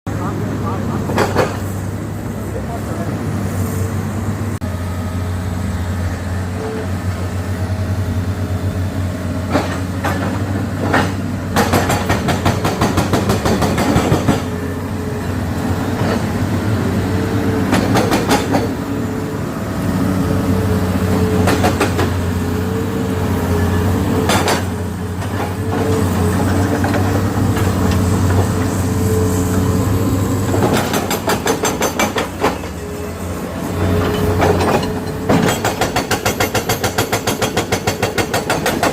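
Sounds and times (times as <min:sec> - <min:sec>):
diesel engine running: 0:00.1 - 0:36.9.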